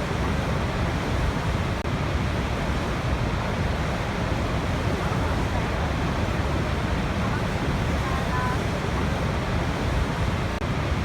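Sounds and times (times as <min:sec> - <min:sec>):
waterfall rushing: 0:02.4 - 0:11.0.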